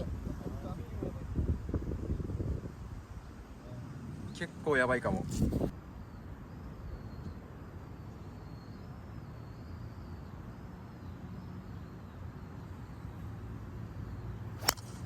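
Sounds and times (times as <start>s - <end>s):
wind rumbling on microphone: 0.0s - 4.2s, 5.0s - 5.8s.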